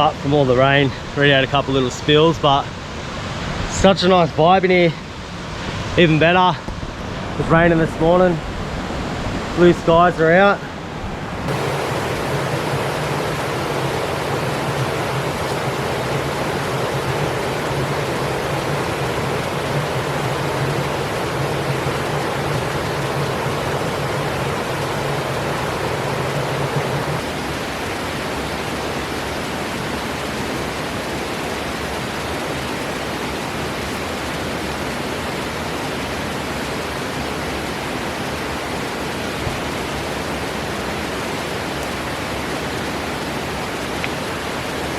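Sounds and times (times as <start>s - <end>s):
creek rushing over rocks: 11.0s - 28.8s
low rumble in water: 11.5s - 27.2s.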